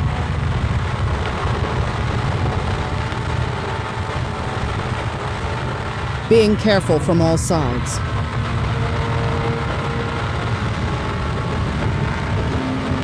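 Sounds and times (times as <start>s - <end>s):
motorcycle engine running: 0.0s - 6.3s, 7.9s - 13.0s
road noise: 0.0s - 13.0s
rushing wind: 0.0s - 13.0s.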